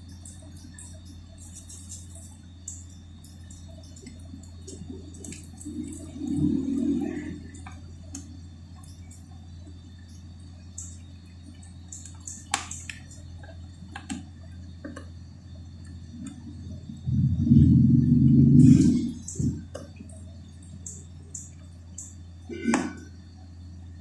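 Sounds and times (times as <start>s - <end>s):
low hum: 0.0s - 24.0s
muffled noise: 15.9s - 20.4s.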